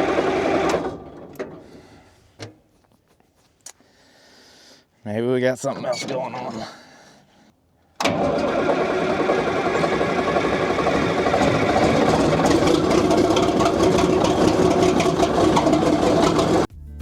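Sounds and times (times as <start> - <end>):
diesel engine knocking clatter: 8.8 - 16.7.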